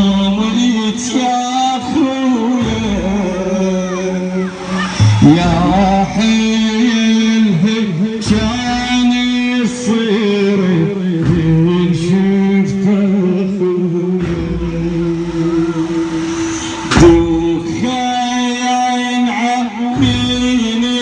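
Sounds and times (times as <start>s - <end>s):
person chanting a lament: 0.0s - 21.0s
short low hit: 2.6s - 7.1s.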